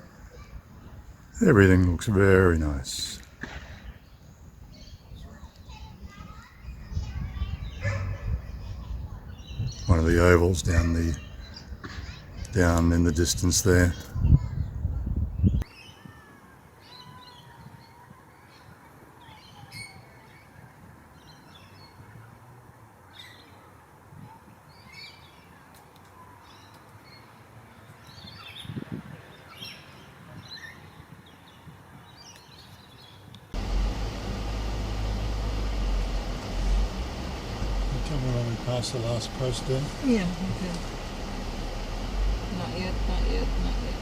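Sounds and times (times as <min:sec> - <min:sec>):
faint outdoor hiss: 0:00.0 - 0:14.4, 0:31.2 - 0:44.0
birds chirping and calling: 0:06.6 - 0:15.6
steady low rumble: 0:33.6 - 0:44.0.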